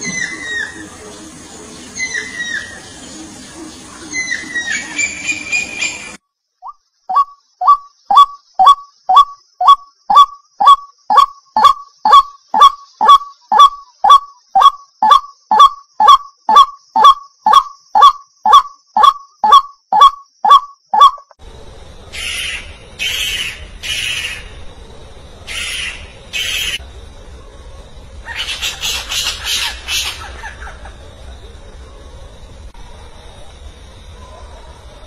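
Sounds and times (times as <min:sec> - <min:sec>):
owl screeching calls: 0:00.0 - 0:00.9, 0:22.1 - 0:24.5, 0:25.5 - 0:26.8, 0:28.2 - 0:30.8.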